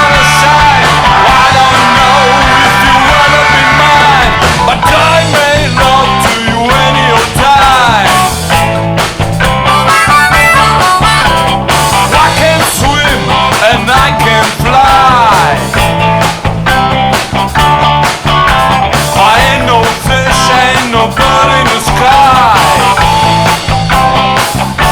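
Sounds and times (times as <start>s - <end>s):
lead guitar bending notes: 0.0s - 13.6s
blues-rock band playing: 0.0s - 24.9s.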